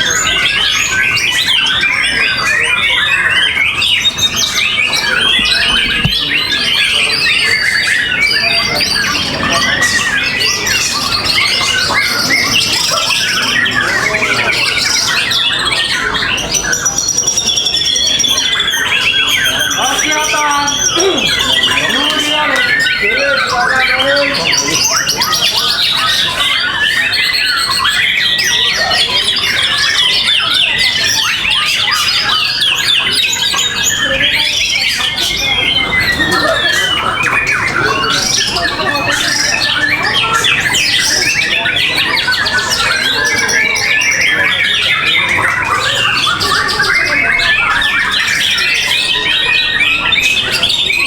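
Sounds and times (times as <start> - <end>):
chorus of songbirds: 0.0 - 51.0.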